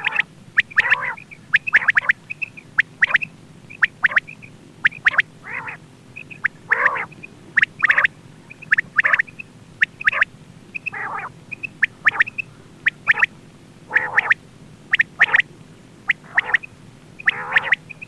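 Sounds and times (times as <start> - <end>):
faint steady hum: 0.0 - 18.0
quail calls: 0.0 - 18.0.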